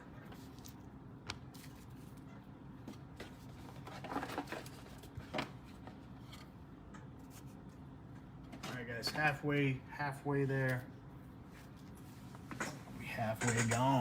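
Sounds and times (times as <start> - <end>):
card packs rustling: 3.2 - 5.8.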